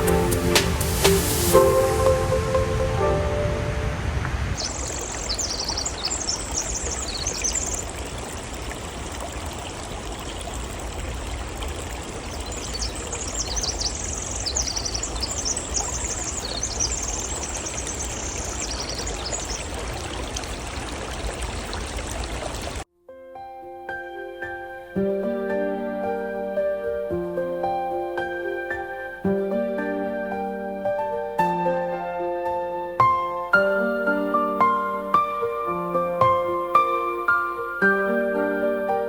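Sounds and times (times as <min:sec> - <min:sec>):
creek water rushing: 0:00.0 - 0:22.8
small bird chirping song: 0:04.6 - 0:08.1, 0:12.2 - 0:20.0.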